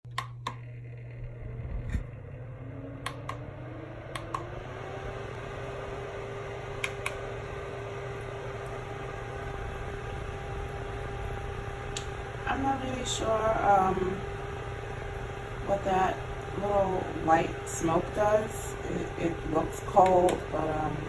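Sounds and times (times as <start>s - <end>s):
small fan motor whining and humming: 0.1s - 21.0s.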